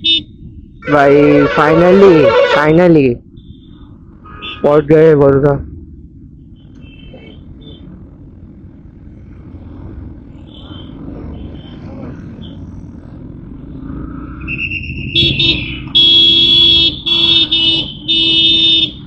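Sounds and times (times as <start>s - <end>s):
wind and motorcycle road rumble: 0.0s - 19.0s
loud vehicle horn blasts: 0.8s - 2.8s, 15.2s - 19.0s.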